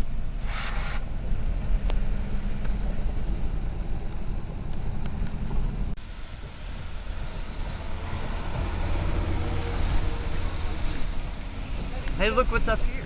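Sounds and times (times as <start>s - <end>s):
engine idling drone: 0.0s - 13.0s
short hiss: 0.4s - 1.1s.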